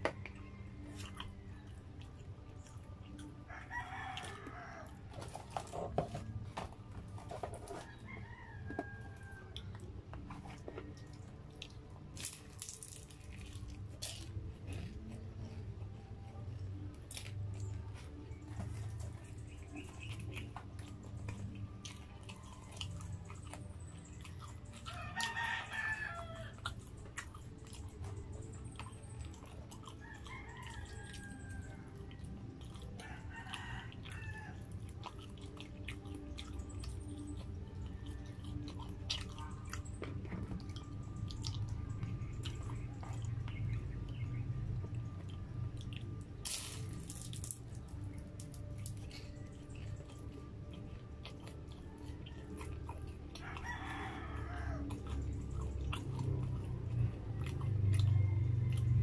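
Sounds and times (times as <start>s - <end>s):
biting and chewing food: 0.0s - 59.0s
rooster crowing: 3.4s - 5.4s, 7.6s - 9.8s, 24.9s - 26.7s, 29.9s - 32.2s, 33.0s - 34.7s, 52.2s - 55.2s, 57.8s - 59.0s.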